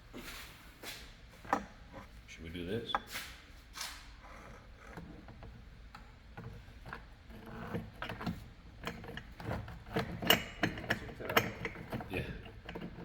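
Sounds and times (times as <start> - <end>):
tools clicking and knocking: 1.4 - 2.1, 4.3 - 13.0.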